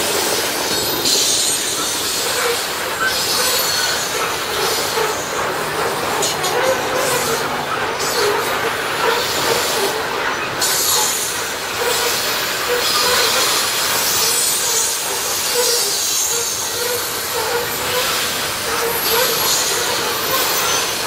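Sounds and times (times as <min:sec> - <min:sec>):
high-pitched hiss: 0:00.0 - 0:05.3
steel wheels on rail: 0:00.0 - 0:21.0.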